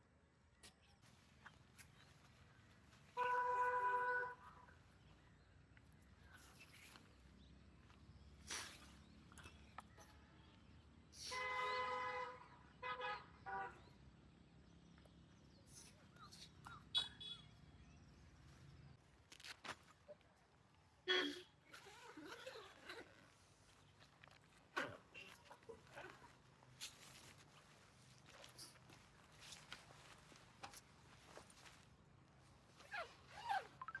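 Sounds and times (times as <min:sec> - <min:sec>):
vehicle horn honking: 0:03.2 - 0:04.4, 0:11.2 - 0:13.7.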